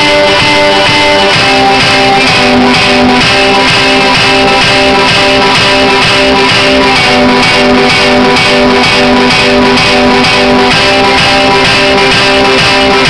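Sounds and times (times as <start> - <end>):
loud music with plucked guitar: 0.0 - 13.0.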